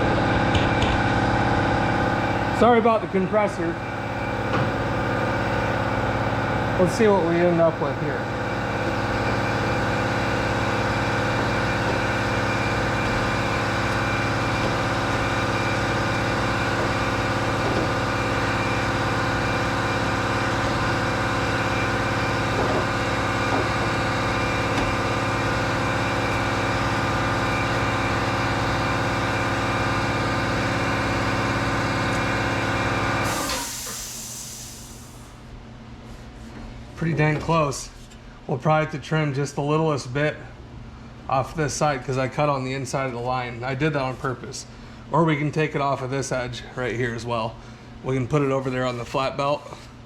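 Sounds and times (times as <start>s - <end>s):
air compressor running: 0.0s - 37.0s, 46.6s - 48.0s.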